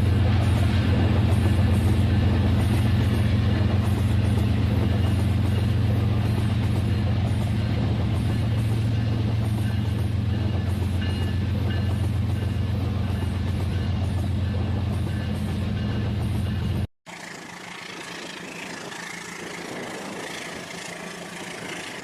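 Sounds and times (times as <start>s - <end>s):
toy train motor humming: 17.1s - 22.0s.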